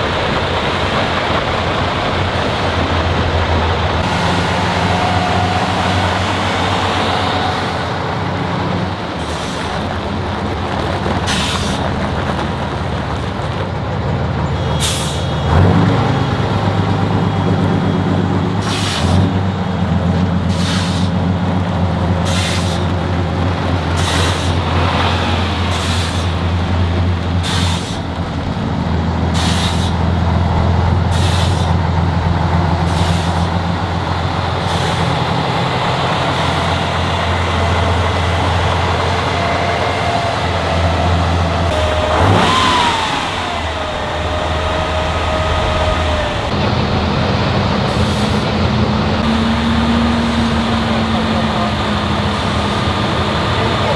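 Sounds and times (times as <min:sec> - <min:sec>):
truck diesel engine running: 0:00.0 - 0:53.9
air brake hisses: 0:11.3 - 0:11.9, 0:14.8 - 0:15.5, 0:18.6 - 0:19.3, 0:20.5 - 0:21.2, 0:22.2 - 0:22.9, 0:24.0 - 0:24.7, 0:27.4 - 0:28.1, 0:29.3 - 0:30.3, 0:31.1 - 0:31.8, 0:32.9 - 0:33.6, 0:41.7 - 0:46.5, 0:47.9 - 0:48.6.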